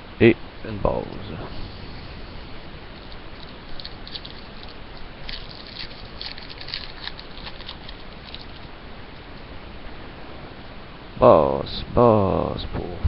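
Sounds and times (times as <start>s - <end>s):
steady low hiss: 0.0s - 13.0s
card pack rustling: 3.0s - 8.7s.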